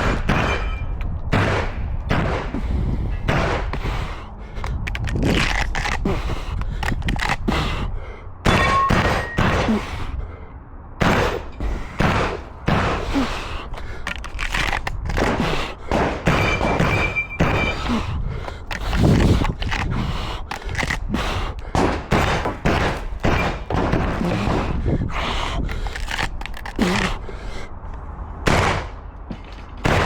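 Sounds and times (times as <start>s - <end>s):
shotgun shots: 0.0s - 2.6s, 3.3s - 3.8s, 8.4s - 9.8s, 11.0s - 13.2s, 15.1s - 17.9s, 21.7s - 24.8s, 28.5s - 29.0s
gun handling noise: 4.6s - 7.5s, 13.1s - 24.7s, 25.7s - 27.2s.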